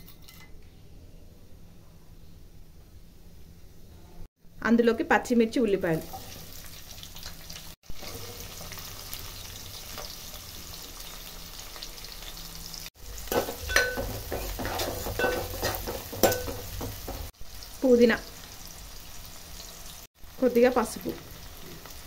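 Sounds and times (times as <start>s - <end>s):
onions sizzling in hot oil: 5.6s - 22.0s.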